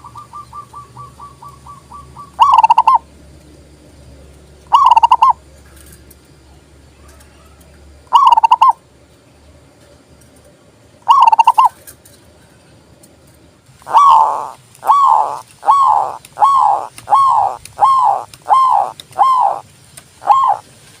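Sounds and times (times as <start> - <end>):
dove cooing: 0.0 - 3.1, 4.7 - 5.4, 8.1 - 8.8, 11.1 - 11.8, 13.8 - 20.7
dove rolling trill: 0.0 - 3.1, 4.7 - 5.5, 8.1 - 8.8, 11.0 - 11.8, 13.8 - 20.7.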